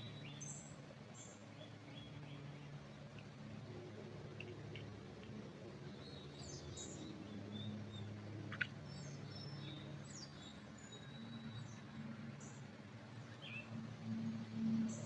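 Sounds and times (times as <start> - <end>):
small birds chirping: 0.0 - 3.4, 5.8 - 13.8
low steady hum: 0.0 - 15.0.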